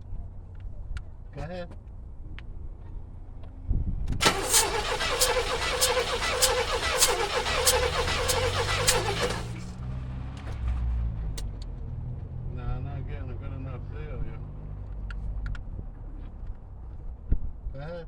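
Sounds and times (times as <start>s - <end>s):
engine starter cranking: 4.2s - 9.7s.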